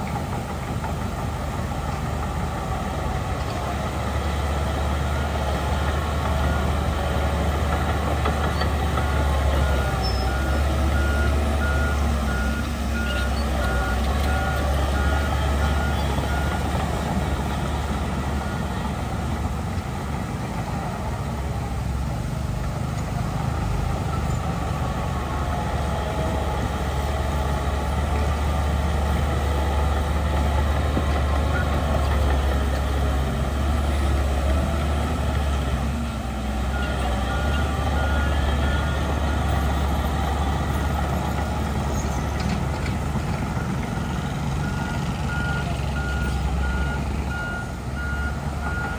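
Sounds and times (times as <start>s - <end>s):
heavy diesel engine running: 0.0s - 48.9s
reversing alarm beeping: 43.6s - 48.9s.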